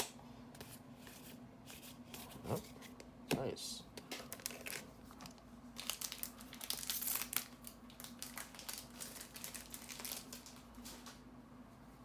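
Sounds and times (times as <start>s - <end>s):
foil wrapper crinkling: 4.2s - 11.2s.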